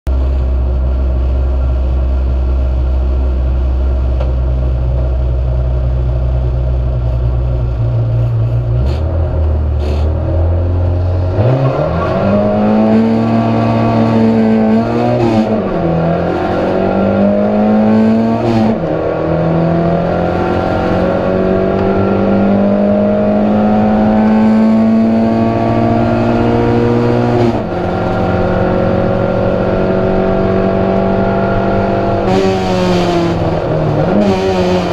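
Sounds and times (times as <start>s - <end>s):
race car engine accelerating: 7.0s - 34.9s.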